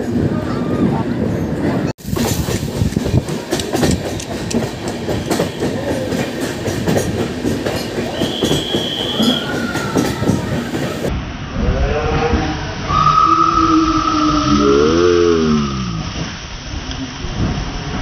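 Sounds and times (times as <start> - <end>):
train wheels clattering: 1.3 - 11.1
wheels squealing: 8.0 - 11.0.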